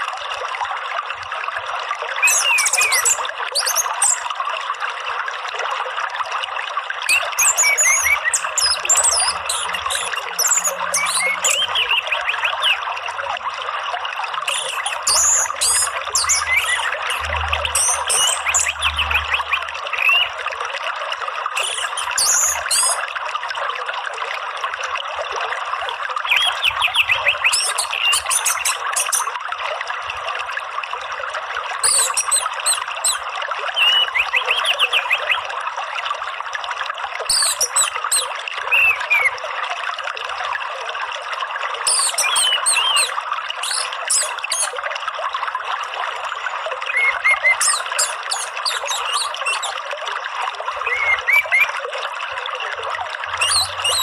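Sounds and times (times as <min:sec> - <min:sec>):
running water: 0:00.0 - 0:54.0
bird chirps and whistles: 0:02.2 - 0:04.2, 0:07.1 - 0:12.8, 0:14.5 - 0:20.4, 0:21.6 - 0:23.0, 0:26.3 - 0:29.4, 0:31.8 - 0:33.2, 0:33.8 - 0:35.4, 0:37.3 - 0:39.4, 0:41.9 - 0:44.8, 0:46.9 - 0:49.8, 0:50.8 - 0:51.8, 0:53.4 - 0:54.0.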